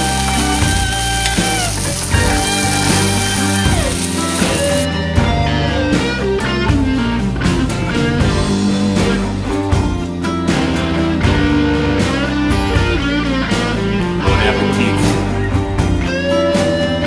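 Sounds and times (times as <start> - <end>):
sizzle of frying in a pan: 0.0 - 4.9
guitar rock music: 0.0 - 17.0.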